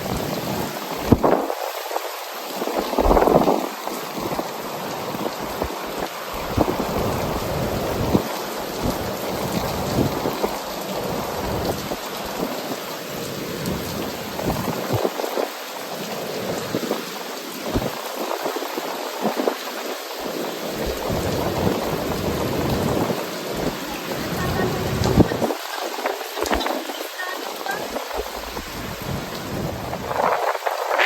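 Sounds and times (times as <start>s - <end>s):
ocean surf breaking: 0.0s - 31.0s.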